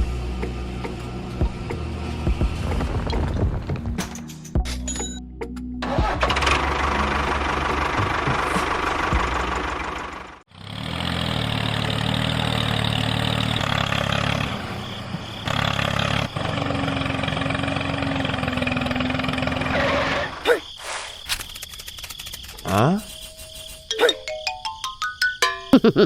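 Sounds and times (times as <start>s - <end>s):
small engine running: 5.8s - 20.4s.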